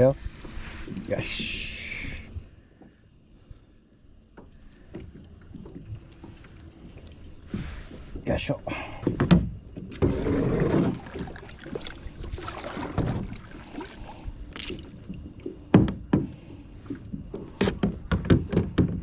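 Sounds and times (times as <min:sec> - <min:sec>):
water sloshing: 0:04.3 - 0:18.1
rush of water: 0:09.9 - 0:15.6.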